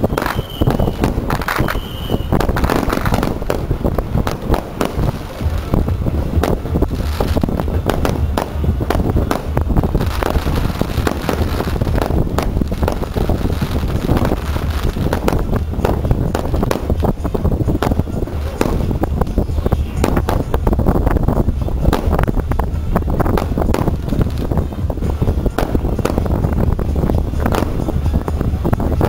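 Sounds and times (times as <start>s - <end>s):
fireworks bangs and crackles: 0.0s - 29.0s
wind on microphone: 0.0s - 29.0s.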